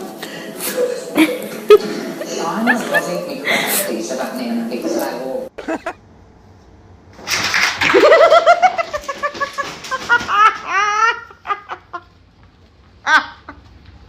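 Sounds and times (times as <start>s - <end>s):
person giggling high-pitched: 0.8s - 3.8s, 5.6s - 6.0s, 8.0s - 12.0s.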